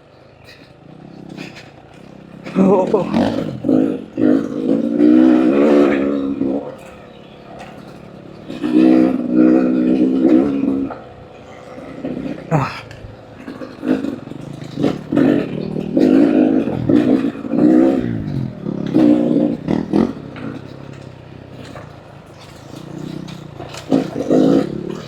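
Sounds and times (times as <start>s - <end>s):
dirt bike engine revving: 0.0s - 25.0s
engine knocks and clatter: 0.0s - 25.0s.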